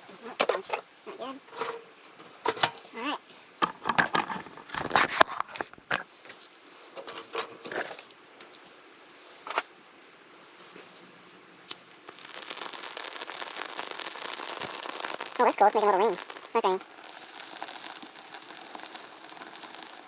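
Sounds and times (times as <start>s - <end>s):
fire crackling: 0.0s - 20.0s.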